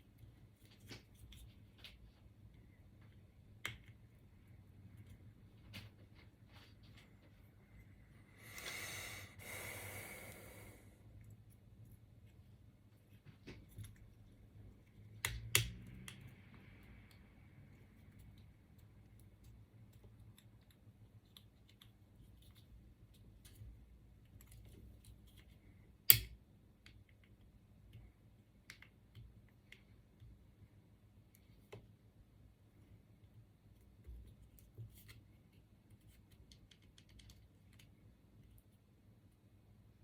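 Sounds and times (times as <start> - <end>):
small parts clicking and tapping: 13.4 - 30.4, 34.0 - 38.7.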